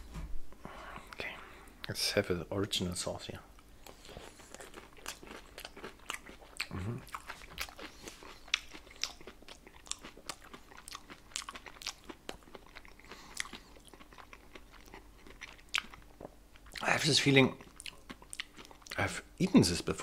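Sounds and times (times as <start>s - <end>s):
person chewing crunchy food: 3.6s - 16.8s, 17.5s - 19.0s.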